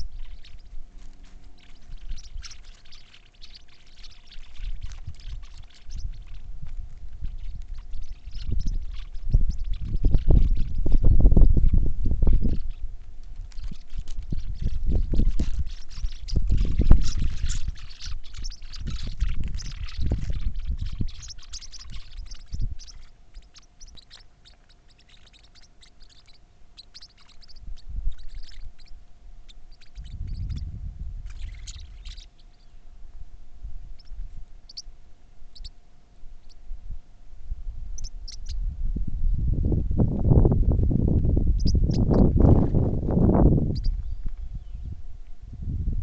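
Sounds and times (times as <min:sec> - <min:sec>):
birds chirping: 0:00.0 - 0:33.2, 0:33.8 - 0:36.6, 0:37.9 - 0:38.7, 0:41.4 - 0:45.3
low rumbling: 0:27.6 - 0:35.5, 0:36.2 - 0:46.0.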